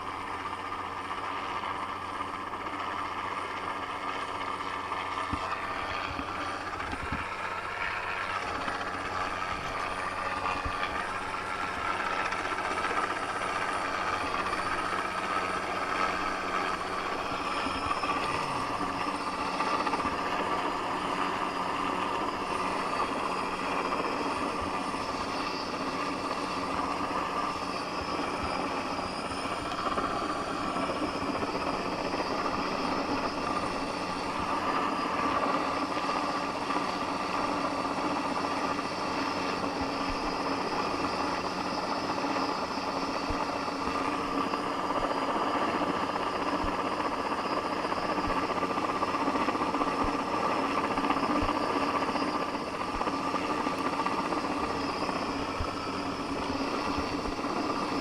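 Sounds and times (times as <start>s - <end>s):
helicopter rotor and turbine drone: 0.0s - 58.0s.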